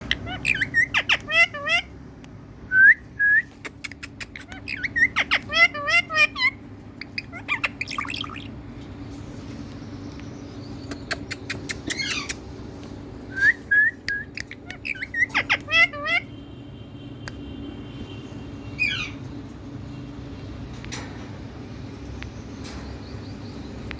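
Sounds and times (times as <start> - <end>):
parrot squawking and chirping: 0.0 - 2.0, 3.6 - 8.7, 10.6 - 12.6, 13.2 - 16.4, 18.7 - 19.4.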